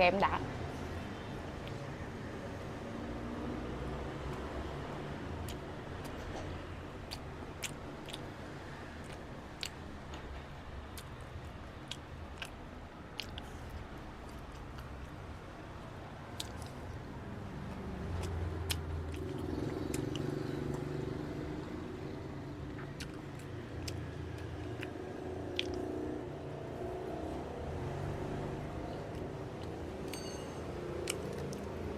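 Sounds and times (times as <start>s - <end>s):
chewing and biting mouth sounds: 5.3s - 10.2s, 10.9s - 16.9s, 17.5s - 26.2s, 26.8s - 31.9s.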